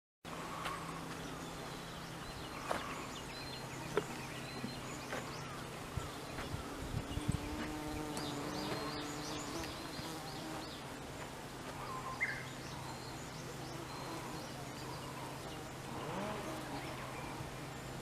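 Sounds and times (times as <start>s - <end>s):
higher insect buzz: 0.4s - 11.0s, 11.7s - 18.0s
bee buzzing: 1.9s - 11.0s, 13.3s - 18.0s.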